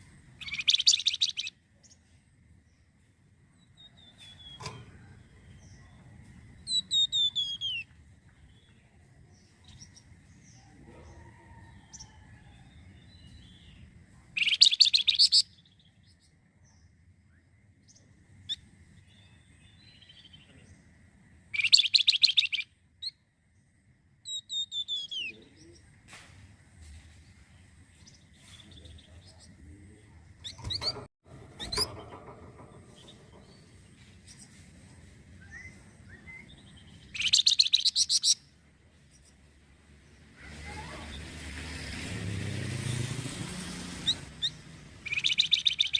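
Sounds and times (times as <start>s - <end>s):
loud fast bird trills: 0.4s - 1.5s, 21.6s - 22.6s, 37.1s - 38.4s, 44.0s - 45.9s
songbird whistled phrases: 21.6s - 22.6s, 45.1s - 45.9s.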